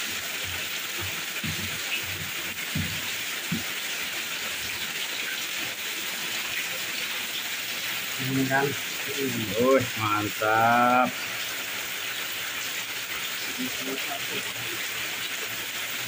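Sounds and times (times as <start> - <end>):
heavy rain falling: 0.0 - 16.0
faint low thuds: 0.5 - 3.8.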